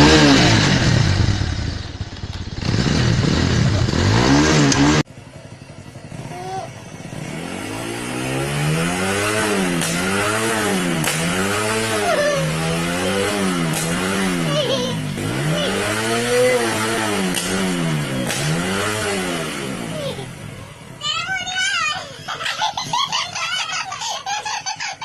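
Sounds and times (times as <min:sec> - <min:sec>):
motorcycle engine revving: 0:00.0 - 0:21.0
exhaust pops: 0:09.6 - 0:12.0, 0:13.3 - 0:15.5, 0:16.8 - 0:19.2.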